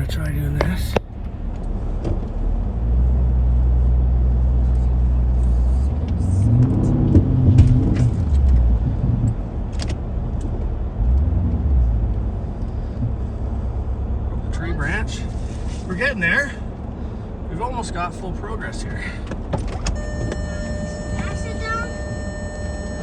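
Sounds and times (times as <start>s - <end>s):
suv engine revving under load: 19.9s - 23.0s.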